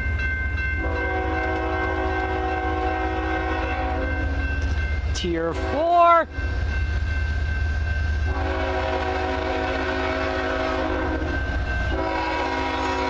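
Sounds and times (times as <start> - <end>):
diesel locomotives rumbling: 0.0 - 13.0
locomotive air horn: 0.8 - 4.4, 8.3 - 11.3, 11.9 - 13.0.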